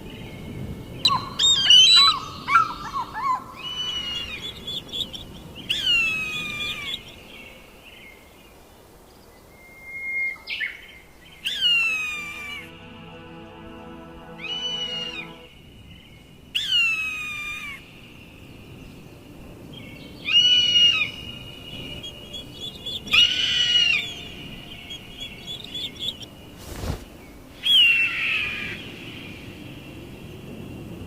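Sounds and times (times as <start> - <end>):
bird of prey screaming: 1.1 - 4.5, 23.1 - 24.1.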